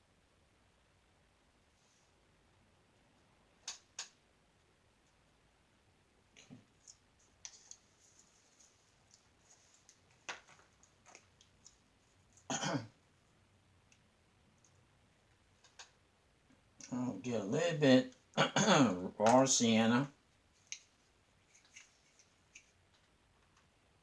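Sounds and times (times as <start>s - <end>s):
person clearing throat: 12.5s - 13.0s, 18.4s - 19.0s.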